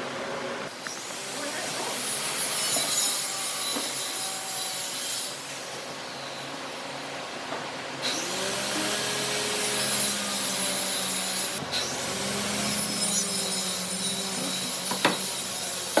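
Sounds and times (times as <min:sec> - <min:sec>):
power tool cutting wood: 0:08.0 - 0:16.0.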